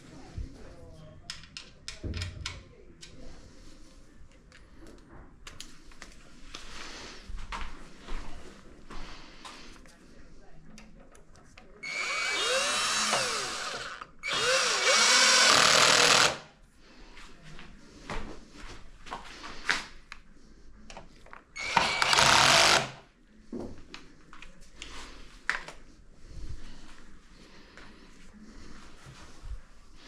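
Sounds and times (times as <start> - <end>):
power drill whining: 11.8 - 16.5, 21.6 - 23.0.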